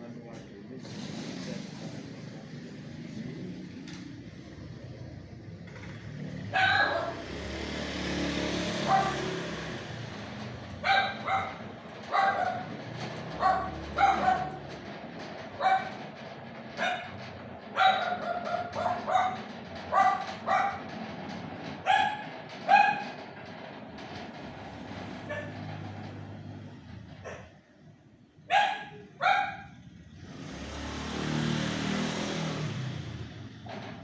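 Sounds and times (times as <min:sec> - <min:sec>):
dog barking: 0:06.6 - 0:07.2, 0:08.8 - 0:09.3, 0:10.8 - 0:12.7, 0:13.4 - 0:14.6, 0:15.6 - 0:15.9, 0:16.8 - 0:17.1, 0:17.8 - 0:20.8, 0:21.8 - 0:23.2, 0:25.3 - 0:25.6, 0:28.5 - 0:29.8.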